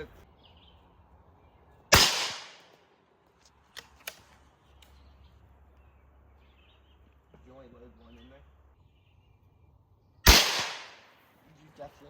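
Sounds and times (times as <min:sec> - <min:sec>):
gunshot: 0:01.9 - 0:02.7, 0:10.3 - 0:11.1.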